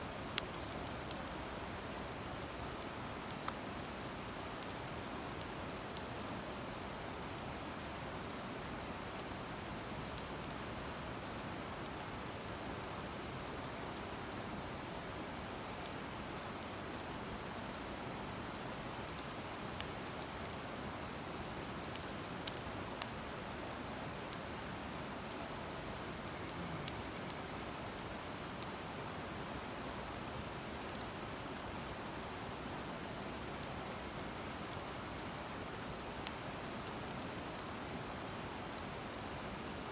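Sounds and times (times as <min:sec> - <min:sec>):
wood fire crackling and popping: 0:00.1 - 0:39.9
steady rushing hiss: 0:24.6 - 0:28.6.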